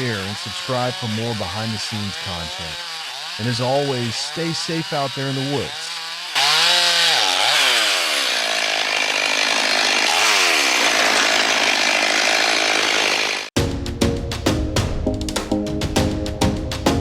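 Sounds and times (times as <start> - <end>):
chainsaw cutting: 0.0 - 13.6
music with a beat: 13.6 - 17.0.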